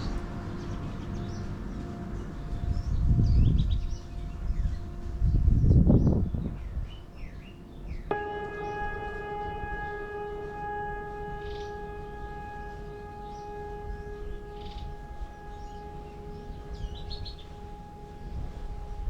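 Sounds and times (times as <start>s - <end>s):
birds chirping: 0.0s - 19.0s
steady pitched tone: 8.1s - 19.0s.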